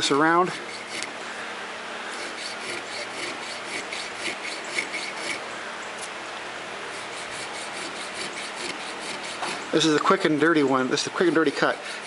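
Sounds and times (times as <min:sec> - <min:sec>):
hand file rasping metal: 0:00.0 - 0:01.1, 0:02.1 - 0:05.4, 0:06.9 - 0:09.9, 0:11.0 - 0:12.0.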